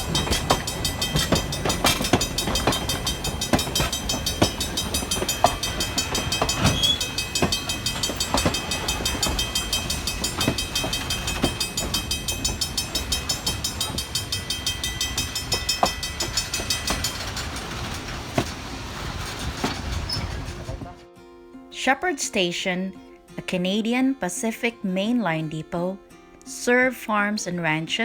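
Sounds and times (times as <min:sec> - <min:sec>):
high ringing note: 0:00.0 - 0:18.3
steam train rumbling on rails: 0:00.0 - 0:21.0
wheel clicks over rail joints: 0:00.0 - 0:21.0.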